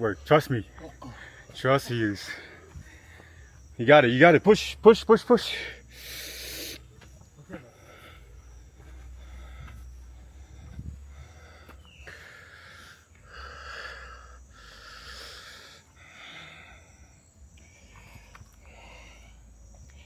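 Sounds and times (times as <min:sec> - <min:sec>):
person breathing heavily: 0:00.9 - 0:01.6, 0:02.2 - 0:03.7, 0:05.6 - 0:06.9, 0:07.6 - 0:20.0.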